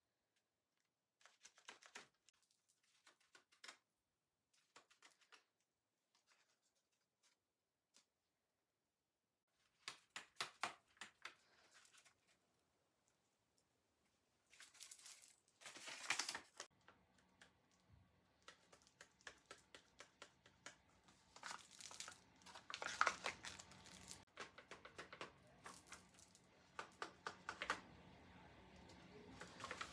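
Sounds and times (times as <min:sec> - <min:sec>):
paper crinkling and rustling: 0:14.4 - 0:16.7, 0:21.0 - 0:27.7, 0:28.9 - 0:29.9.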